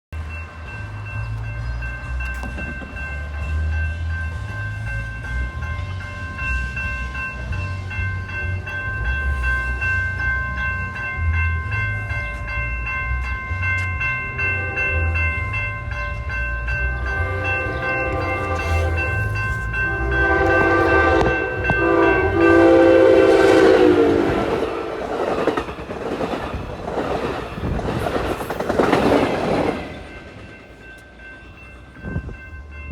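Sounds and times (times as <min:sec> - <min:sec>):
railroad crossing bell ringing: 0:00.2 - 0:32.9
train wheel clatter: 0:00.3 - 0:32.9
train horn: 0:14.4 - 0:15.4, 0:16.9 - 0:25.5.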